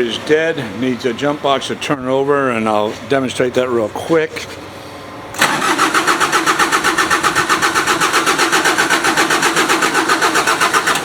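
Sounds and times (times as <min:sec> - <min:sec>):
diesel engine cranking over: 0:05.3 - 0:11.0.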